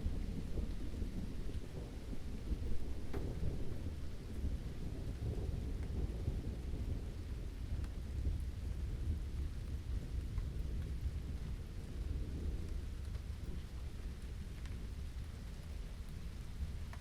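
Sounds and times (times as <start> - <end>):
steady rain: 0.0 - 17.0
faint drip ticks: 12.3 - 17.0.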